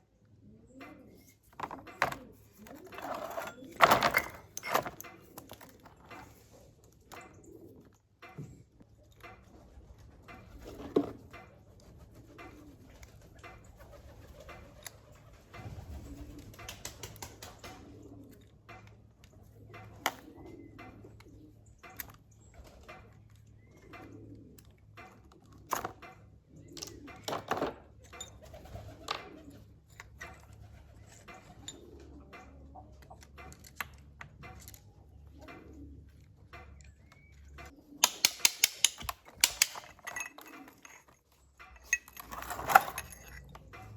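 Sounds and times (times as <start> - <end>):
pigeon cooing: 0.0 - 42.2
sharp clicks and knocks: 0.8 - 6.4, 31.1 - 43.9.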